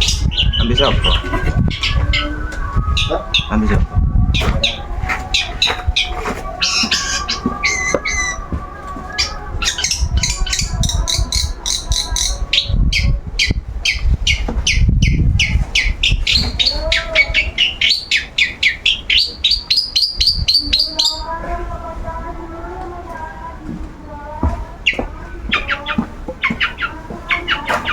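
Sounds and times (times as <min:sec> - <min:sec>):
bird singing rapid sharp chirps: 0:00.0 - 0:03.8, 0:09.1 - 0:21.2
low rumble: 0:00.0 - 0:06.6.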